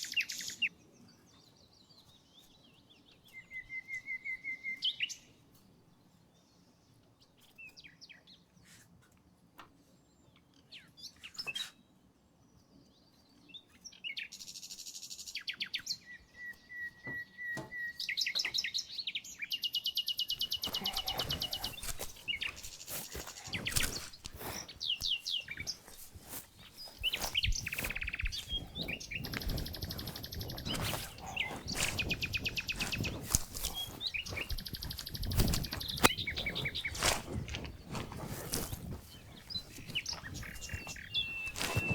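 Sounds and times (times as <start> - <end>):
songbirds trilling: 15.4 - 41.9.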